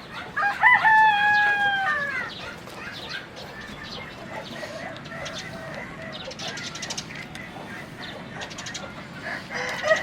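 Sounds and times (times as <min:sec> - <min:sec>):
chickens clucking: 0:00.0 - 0:10.0
rooster crowing: 0:00.4 - 0:02.3, 0:09.5 - 0:10.0.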